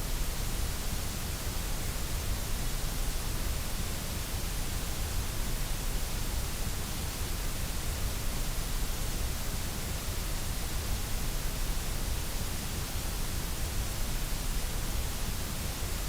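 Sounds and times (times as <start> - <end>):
white noise hiss: 0.0 - 16.0.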